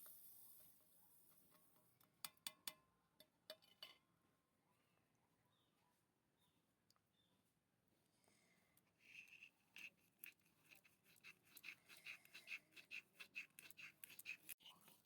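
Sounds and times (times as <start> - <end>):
small utensils scratching and clicking: 9.0 - 15.0.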